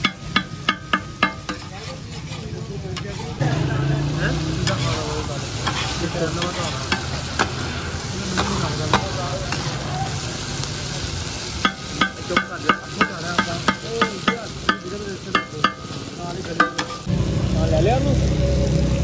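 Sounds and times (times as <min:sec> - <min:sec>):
metal spatula clanking on griddle: 0:00.0 - 0:03.2, 0:04.6 - 0:07.7, 0:08.3 - 0:09.8, 0:11.6 - 0:17.1
chicken sizzling in oil: 0:00.0 - 0:19.0.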